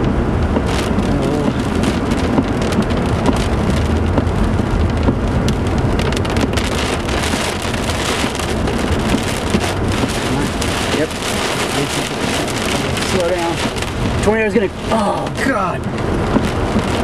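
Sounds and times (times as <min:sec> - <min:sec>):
heavy rain on car roof: 0:00.0 - 0:17.0
low rumble: 0:00.0 - 0:17.0.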